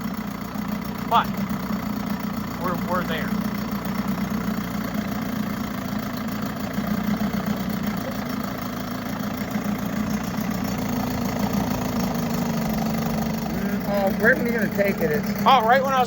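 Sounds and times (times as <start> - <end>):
outboard motor idling: 0.0 - 16.0.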